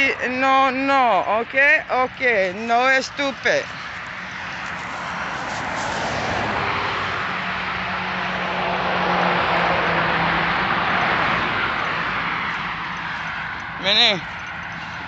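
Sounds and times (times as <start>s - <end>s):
car driving past: 3.6s - 13.8s.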